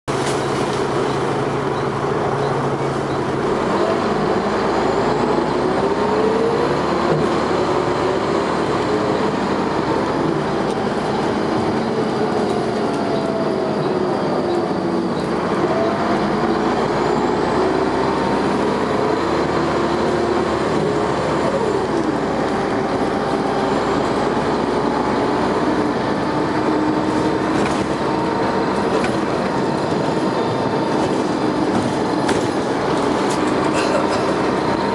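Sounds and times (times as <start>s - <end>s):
bus engine whine rising: 0.1s - 34.9s
bus gear change: 26.7s - 34.8s.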